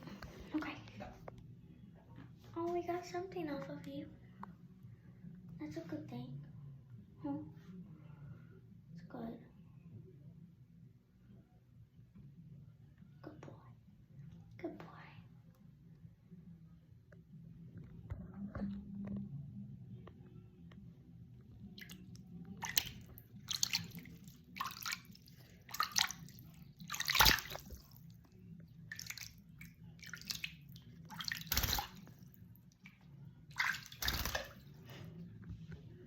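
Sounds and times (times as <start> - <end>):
water splashing in basin: 21.8 - 32.3, 32.9 - 34.7.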